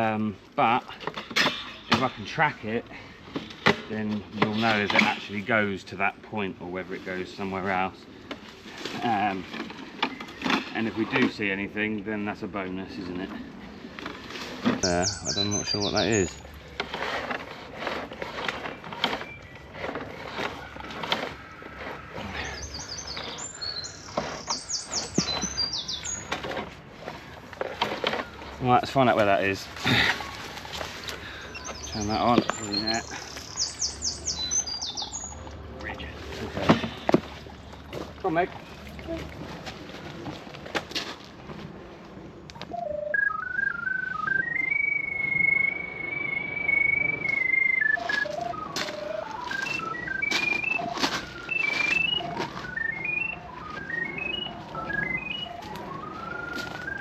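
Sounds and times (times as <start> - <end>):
songbird singing: 12.7 - 17.0, 18.4 - 39.3, 42.5 - 57.0
drain locator tone: 42.6 - 57.0.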